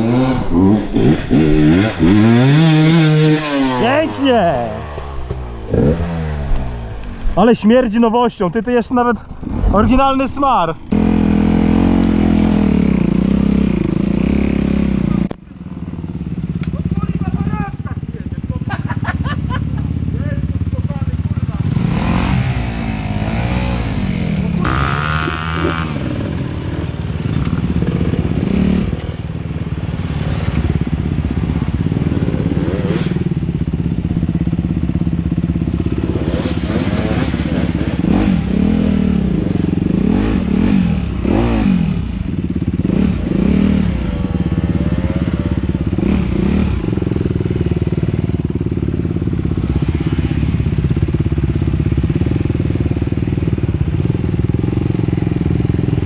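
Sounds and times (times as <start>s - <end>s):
dirt bike engine revving: 0.0s - 16.5s, 17.2s - 56.0s.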